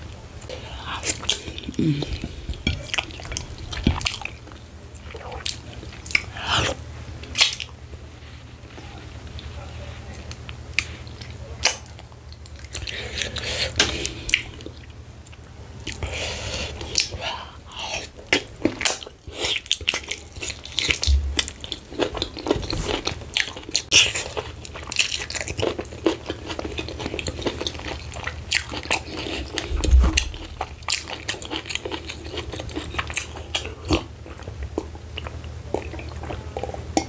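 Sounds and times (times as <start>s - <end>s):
wet sticky chewing: 18.0s - 37.0s
dull low bumps: 29.6s - 30.8s.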